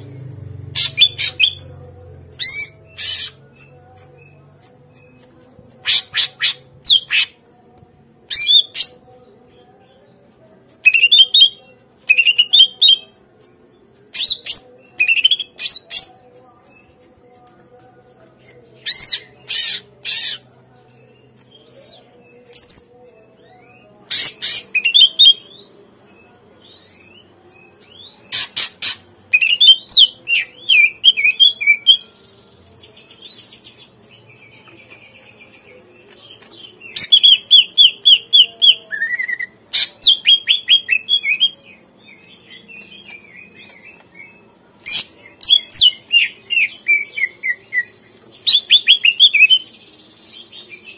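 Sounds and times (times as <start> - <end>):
harsh scratchy bird calls: 2.4 - 3.4, 18.9 - 20.4, 24.1 - 25.1, 28.2 - 30.1
bird singing: 34.4 - 50.9.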